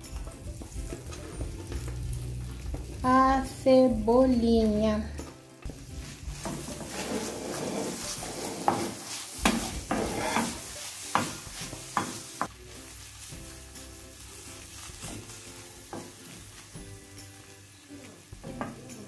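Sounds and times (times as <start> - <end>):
onions sizzling in oil: 0.0 - 19.0
wooden spoon clacking on pan: 8.6 - 12.6.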